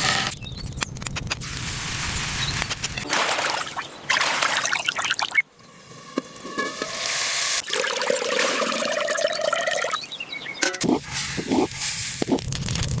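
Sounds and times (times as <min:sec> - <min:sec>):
water trickling and pouring: 0:07.6 - 0:10.0.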